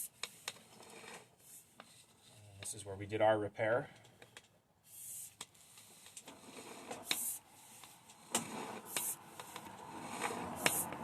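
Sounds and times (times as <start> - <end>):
cable clicking and rubbing: 5.2 - 11.0
short hisses: 7.0 - 11.0.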